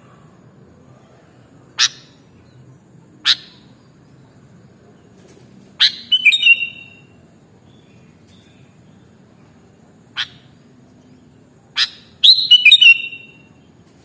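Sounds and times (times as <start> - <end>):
bulbul calling: 5.8 - 7.1, 10.1 - 10.6, 11.8 - 13.5.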